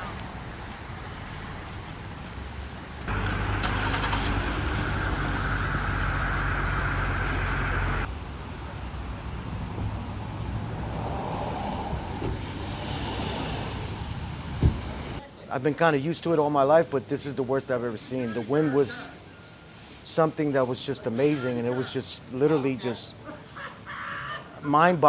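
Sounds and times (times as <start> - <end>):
street traffic noise: 0.0 - 24.6
vehicle engine humming with whine: 0.7 - 8.2.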